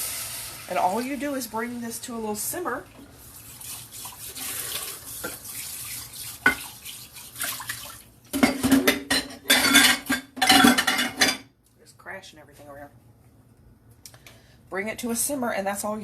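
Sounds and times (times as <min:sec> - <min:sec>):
liquid running: 0:00.0 - 0:08.2.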